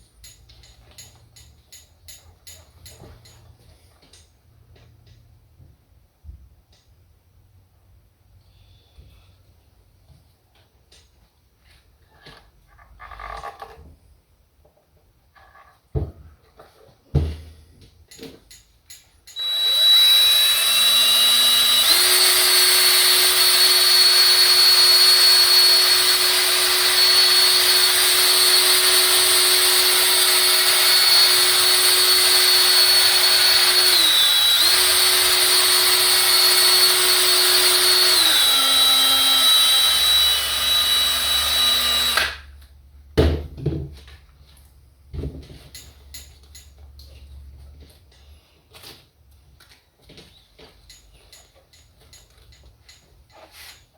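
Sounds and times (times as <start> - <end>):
small electric power tool whining: 19.3 - 42.4.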